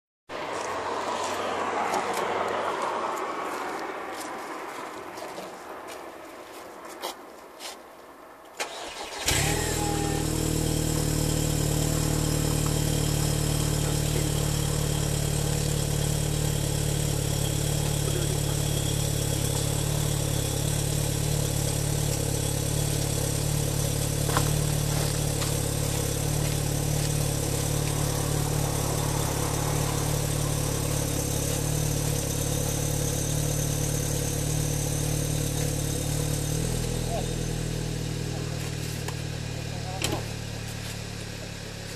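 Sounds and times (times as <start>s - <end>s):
car engine starting and idling: 8.5s - 41.9s.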